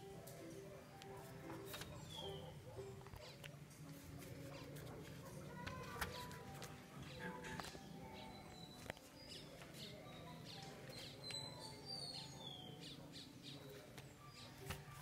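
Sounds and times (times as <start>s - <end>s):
faint bird chirps: 1.6s - 3.5s, 7.0s - 15.0s.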